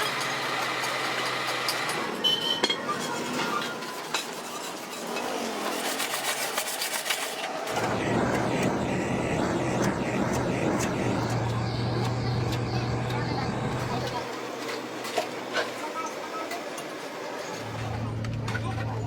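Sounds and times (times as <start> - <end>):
steady low hum: 7.7 - 14.3.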